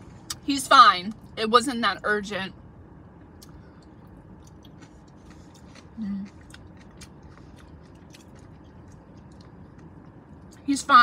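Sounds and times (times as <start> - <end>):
close-up chewing: 3.4 - 10.6.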